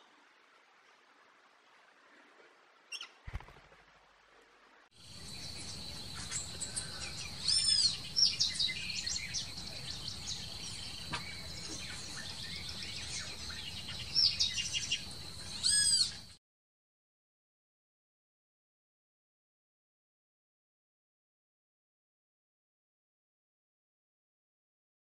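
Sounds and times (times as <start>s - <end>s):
forest birds chirping: 2.0s - 3.8s, 5.0s - 16.4s
harsh arching bird calls: 5.0s - 16.4s.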